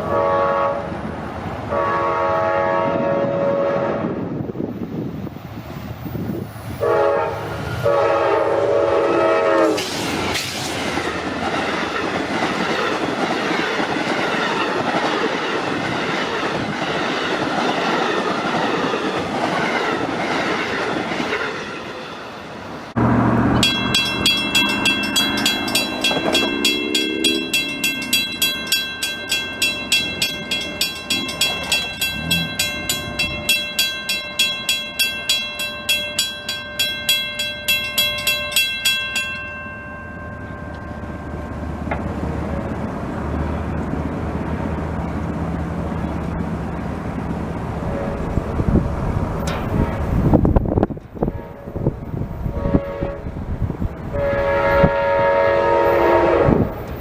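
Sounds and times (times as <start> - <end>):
train horn: 0.0 - 1.0, 1.7 - 4.3, 6.8 - 9.9, 23.0 - 28.2, 47.8 - 48.5, 51.2 - 53.4, 54.1 - 56.9
passing train rumble: 0.0 - 57.0
bell-like ringing: 23.6 - 42.0.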